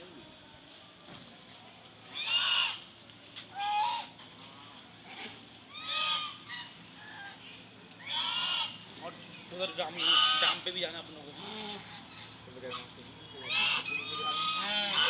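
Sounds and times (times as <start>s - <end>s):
large bird honking: 8.0s - 8.8s, 9.9s - 10.7s, 13.4s - 15.0s.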